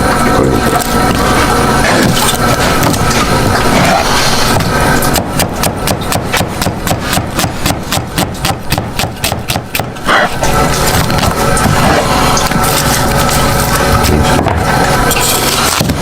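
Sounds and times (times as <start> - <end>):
rapid chopping strokes: 3.8 - 10.3.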